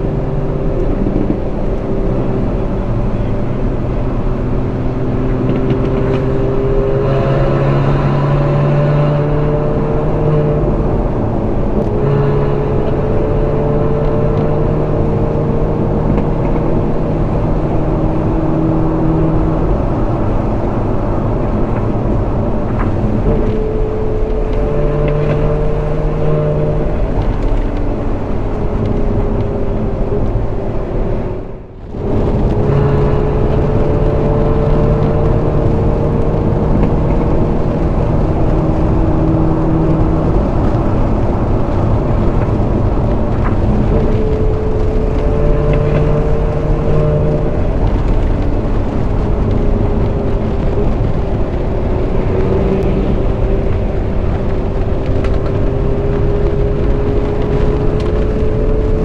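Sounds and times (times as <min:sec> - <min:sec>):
car engine cruising: 0:00.0 - 0:59.0
wind and road noise: 0:00.0 - 0:59.0.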